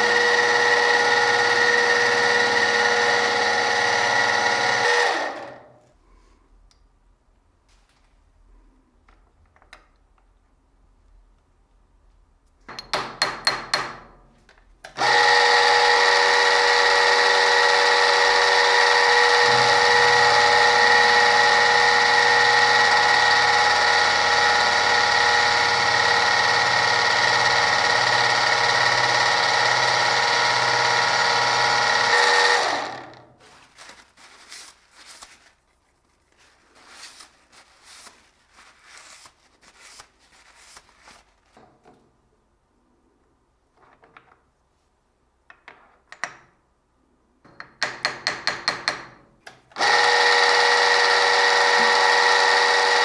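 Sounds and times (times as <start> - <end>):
power tool whining: 0.0 - 5.7, 14.9 - 33.3, 49.8 - 53.0.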